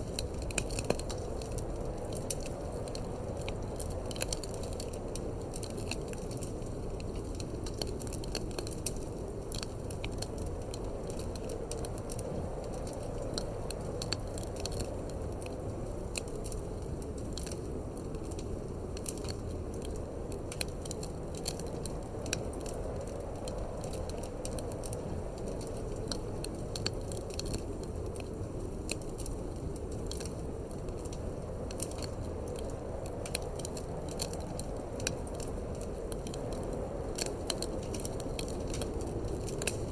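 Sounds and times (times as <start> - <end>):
low rush of wind: 0.0 - 39.9
wood fire crackling and popping: 0.0 - 39.9.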